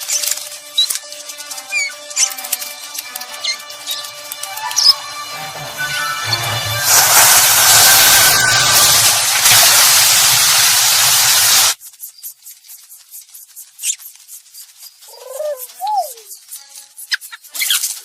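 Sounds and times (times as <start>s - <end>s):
ocean surf rushing: 3.7s - 11.8s
baby bird chirping: 15.1s - 17.8s.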